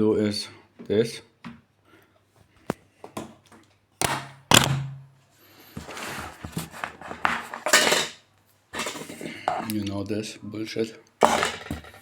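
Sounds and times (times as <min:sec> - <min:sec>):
scraping and rustling: 0:05.6 - 0:08.1, 0:08.8 - 0:09.7
objects knocking on tabletop: 0:11.2 - 0:12.0.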